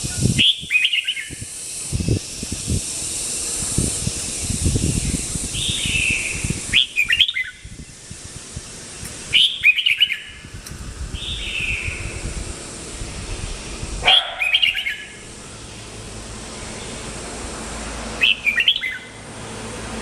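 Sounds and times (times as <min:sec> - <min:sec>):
steady hiss: 0:00.0 - 0:20.0
bird singing bubbly phrases: 0:00.4 - 0:01.5, 0:04.9 - 0:08.0, 0:09.3 - 0:10.4, 0:11.1 - 0:12.2, 0:14.1 - 0:15.2, 0:18.2 - 0:19.1.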